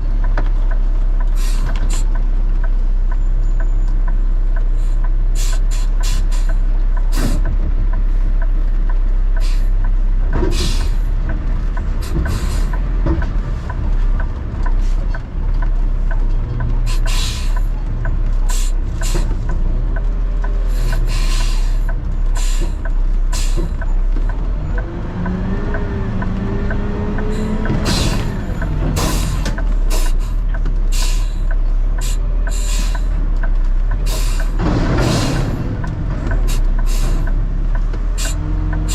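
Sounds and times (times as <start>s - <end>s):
heavy diesel truck running: 0.0s - 38.9s
light regular ticking: 11.0s - 34.6s.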